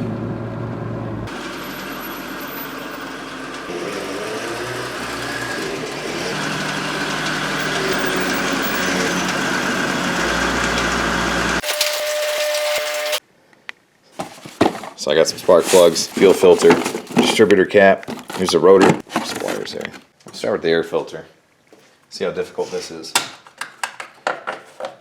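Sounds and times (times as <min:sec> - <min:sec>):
car engine idling: 0:01.2 - 0:11.6.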